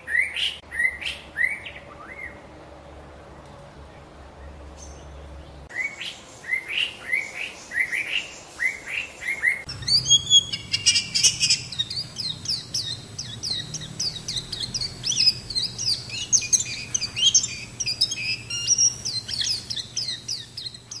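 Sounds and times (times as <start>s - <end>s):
rising whistled bird notes: 5.7s - 21.0s
high-pitched bird twittering: 9.3s - 21.0s.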